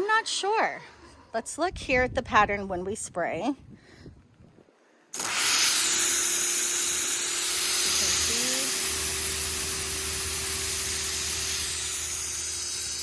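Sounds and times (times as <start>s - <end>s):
pressure washer motor hum: 5.2s - 13.0s
pressure washer water jets hissing: 5.2s - 13.0s.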